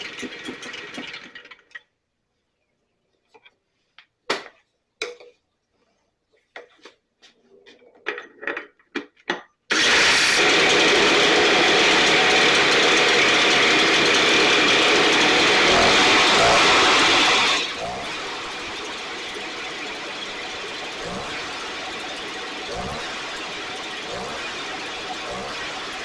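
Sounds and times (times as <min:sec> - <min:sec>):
handling clicks and knocks: 0:07.6 - 0:09.6
backpack blower running: 0:09.7 - 0:26.0.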